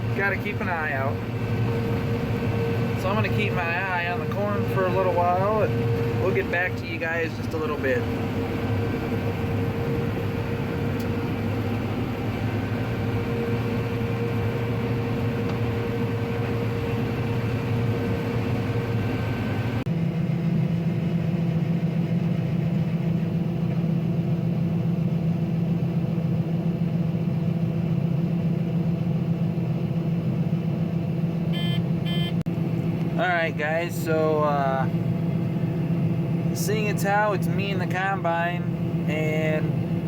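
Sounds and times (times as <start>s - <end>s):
combine harvester running: 0.0s - 40.0s
steady machine whine: 0.0s - 40.0s.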